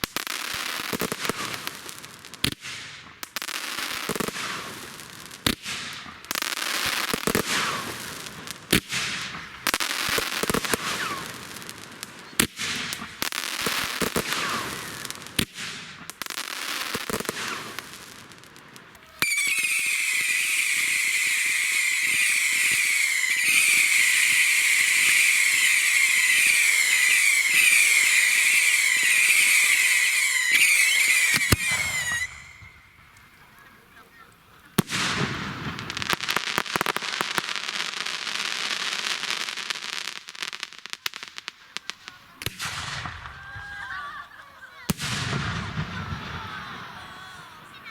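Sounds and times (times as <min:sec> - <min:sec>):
firework hissing and whistling: 0:00.0 - 0:44.1, 0:44.7 - 0:47.9
firework bangs with crackling: 0:00.0 - 0:47.9.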